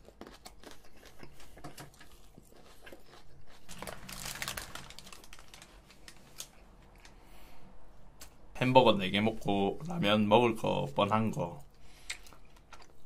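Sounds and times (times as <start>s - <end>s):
crunchy chewing: 0.0s - 7.2s, 11.7s - 13.0s.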